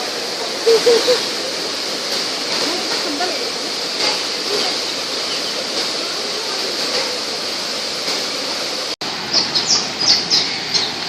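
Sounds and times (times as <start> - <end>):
falling water rushing: 0.0 - 11.0
bird chirps: 4.6 - 5.7, 9.3 - 11.0.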